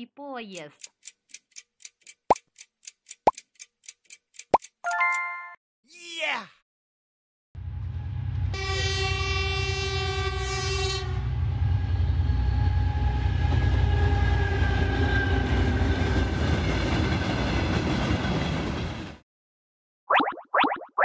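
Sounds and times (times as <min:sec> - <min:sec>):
train horn blast: 0:08.5 - 0:16.2
train coaches rolling past: 0:11.2 - 0:19.2.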